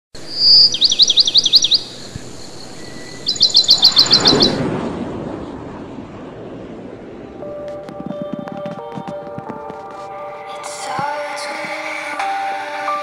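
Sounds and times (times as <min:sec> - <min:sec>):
bird chirping trills: 0:00.2 - 0:04.6
soft rushing noise: 0:01.8 - 0:11.8.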